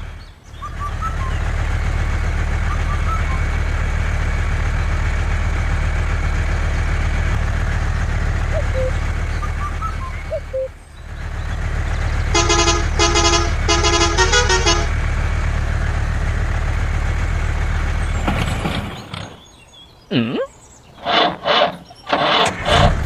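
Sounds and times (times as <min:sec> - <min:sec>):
horn tooting: 0:08.4 - 0:10.7, 0:12.1 - 0:15.3.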